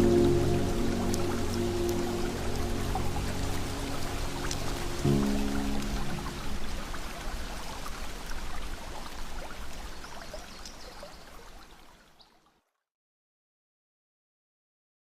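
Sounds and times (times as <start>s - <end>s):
river water rushing: 0.0s - 12.1s
water splashes and trickles: 0.0s - 12.9s.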